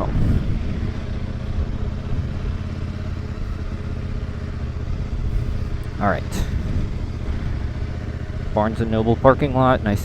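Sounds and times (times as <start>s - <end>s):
wind rushing over microphone: 0.0s - 3.8s, 4.8s - 8.6s
motorcycle engine running: 0.0s - 10.0s.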